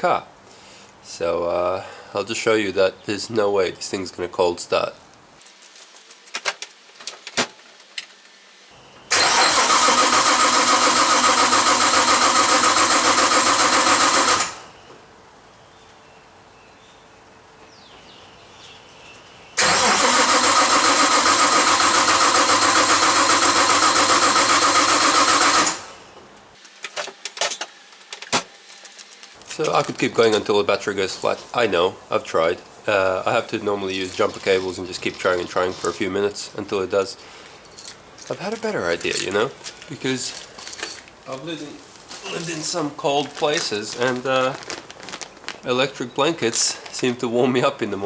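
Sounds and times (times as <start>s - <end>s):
engine cranking by starter motor: 9.1s - 14.7s, 19.6s - 26.0s.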